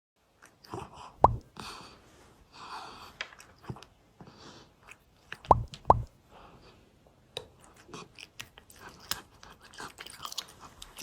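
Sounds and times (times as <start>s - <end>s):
cat eating: 0.2s - 5.8s, 6.4s - 11.0s
sharp rising plop: 1.2s - 1.4s, 5.5s - 6.1s.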